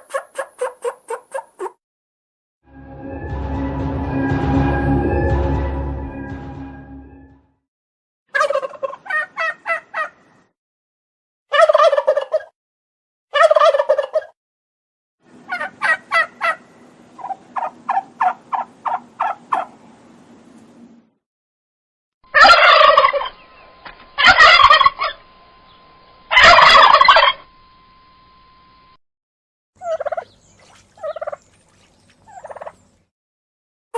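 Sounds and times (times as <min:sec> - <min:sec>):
turkeys gobbling: 0:00.0 - 0:01.7, 0:08.4 - 0:10.2, 0:11.5 - 0:12.5, 0:13.4 - 0:14.3, 0:15.5 - 0:19.8, 0:22.3 - 0:23.4, 0:24.2 - 0:25.2, 0:26.3 - 0:27.4, 0:29.8 - 0:31.5, 0:32.2 - 0:32.8.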